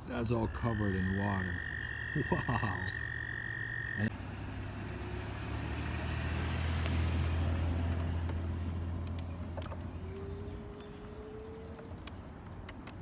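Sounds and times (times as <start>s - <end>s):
car passing by: 4.1s - 11.8s.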